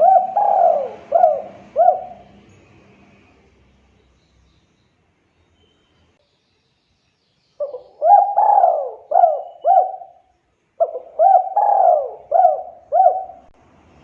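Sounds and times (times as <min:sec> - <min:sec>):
dove cooing: 0:00.0 - 0:02.5, 0:07.6 - 0:10.2, 0:10.8 - 0:13.5.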